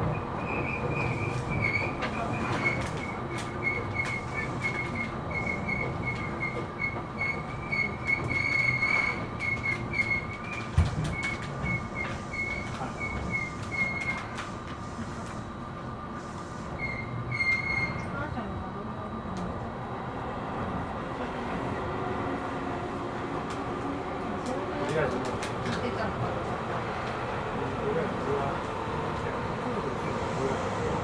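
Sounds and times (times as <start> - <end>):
train wheels squealing: 0.0 - 14.4, 16.7 - 18.2
train car rumble: 0.0 - 31.0.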